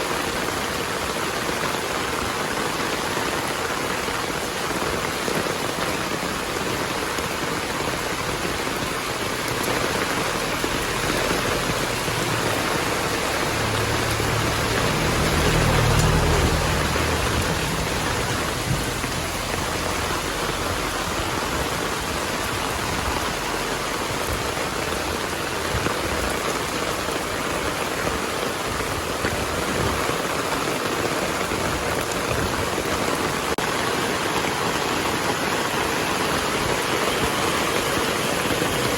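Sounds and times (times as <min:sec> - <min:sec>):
heavy rain: 0:00.0 - 0:38.9
thunder rumble: 0:07.8 - 0:28.2.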